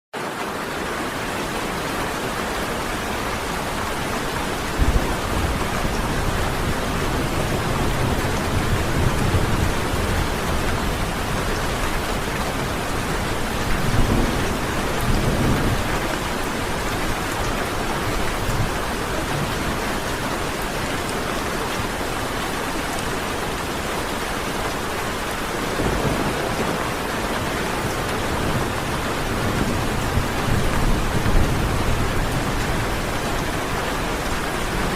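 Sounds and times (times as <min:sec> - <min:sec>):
heavy rain falling: 0:00.2 - 0:34.9
thunder rolling: 0:04.5 - 0:17.0, 0:25.7 - 0:33.5.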